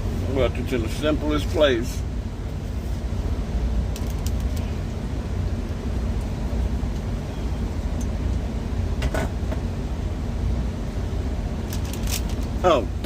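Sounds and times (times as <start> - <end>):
truck engine idling: 0.0 - 13.0
clicks and knocks of things moved: 11.7 - 12.5.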